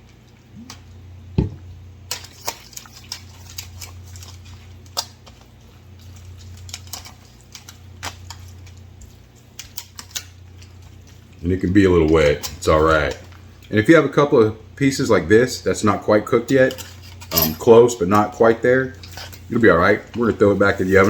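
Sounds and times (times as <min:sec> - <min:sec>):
food stirred with wet squishing: 0:00.0 - 0:14.8, 0:15.6 - 0:21.0
steady low hum: 0:00.0 - 0:21.0
loud thump: 0:01.4 - 0:01.6.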